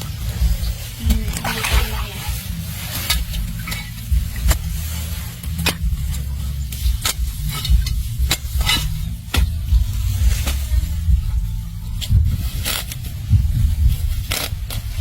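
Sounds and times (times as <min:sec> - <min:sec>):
digging tool striking earth: 0:00.0 - 0:11.0, 0:14.2 - 0:15.0
low rumble: 0:00.0 - 0:15.0.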